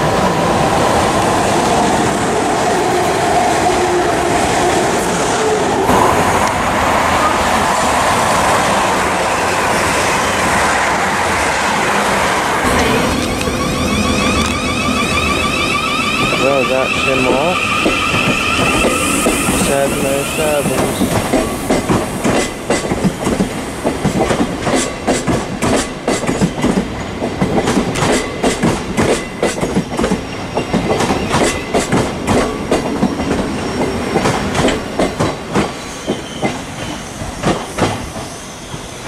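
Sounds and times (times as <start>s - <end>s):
train wheels clattering over rail joints: 20.6s - 38.9s.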